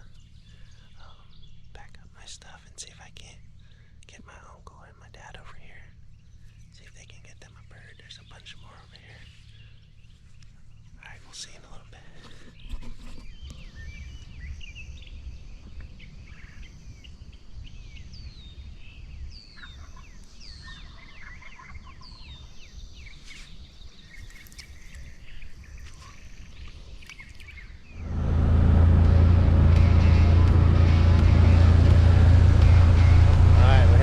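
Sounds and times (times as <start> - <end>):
birds chirping: 0.0 - 34.0
low rumble: 27.8 - 34.0
vehicle engine: 27.9 - 34.0.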